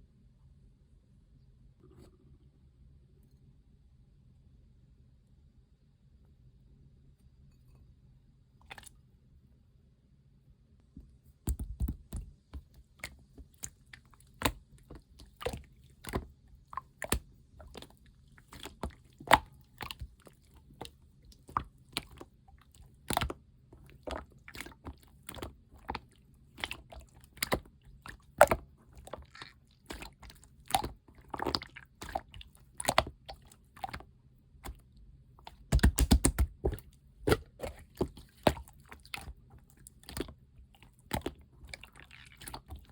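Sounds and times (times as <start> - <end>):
slime popping and clicking: 35.5 - 37.4.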